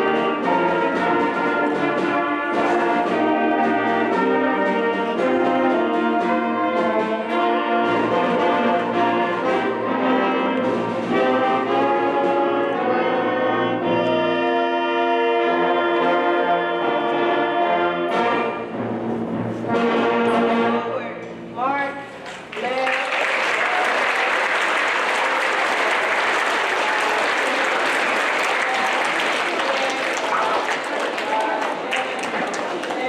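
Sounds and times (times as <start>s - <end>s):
brass ensemble playing slow chords: 0.0s - 21.0s.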